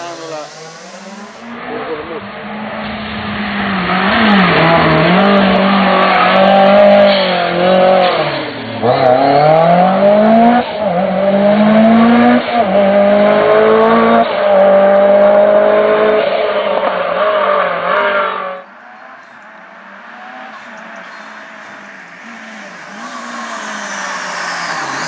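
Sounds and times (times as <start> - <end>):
rally car engine accelerating: 0.0 - 25.0.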